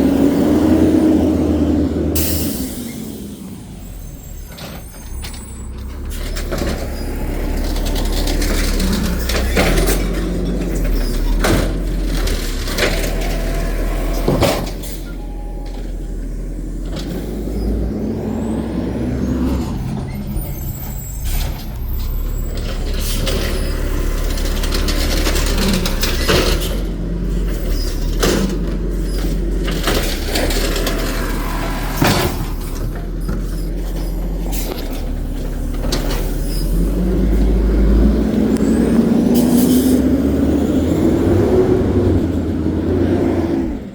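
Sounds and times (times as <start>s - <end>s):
truck diesel engine: 0.0s - 43.9s
clanks: 4.3s - 17.9s, 19.5s - 38.8s.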